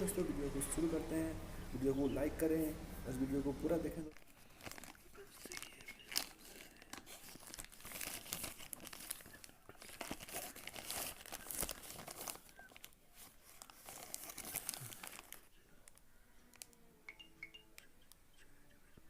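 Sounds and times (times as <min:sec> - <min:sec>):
packaging crinkling and tearing: 0:04.0 - 0:16.7.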